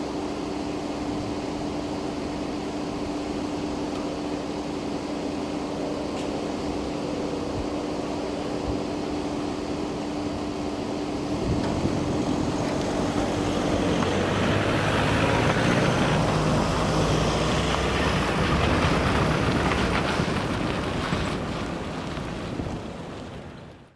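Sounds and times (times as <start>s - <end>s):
vehicle rumbling over level crossing: 5.7s - 23.9s.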